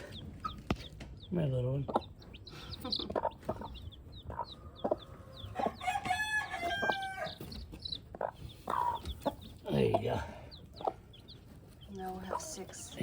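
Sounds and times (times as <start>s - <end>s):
chicks peeping: 0.0s - 13.0s
hen clucking: 0.0s - 13.0s
rooster crowing: 5.2s - 7.4s.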